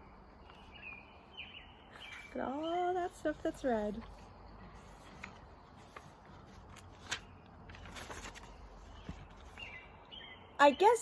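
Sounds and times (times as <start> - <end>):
paper rustling: 2.0 - 9.8.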